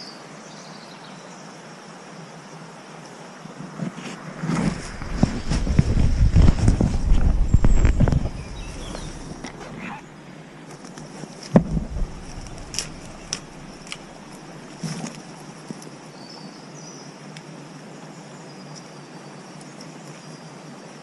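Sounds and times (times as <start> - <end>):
insects chirring: 3.1 - 16.4
handling knocks and thumps: 3.8 - 10.0, 10.8 - 15.1.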